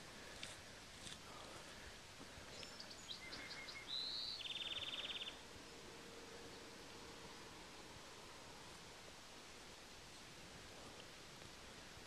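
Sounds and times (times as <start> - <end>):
songbird singing: 0.0 - 8.8
faint outdoor hush: 0.0 - 12.0.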